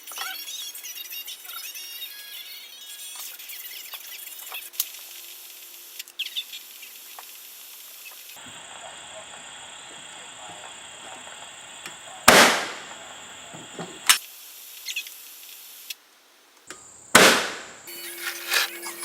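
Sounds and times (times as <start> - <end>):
loud sharp bangs: 12.2 - 13.0, 17.1 - 17.9.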